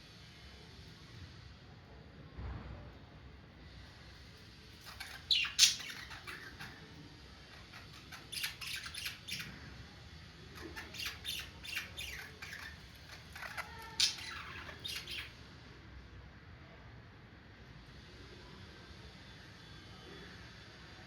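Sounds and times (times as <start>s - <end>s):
budgerigars squawking and chirping: 4.8s - 6.9s, 7.6s - 9.6s, 10.6s - 15.4s.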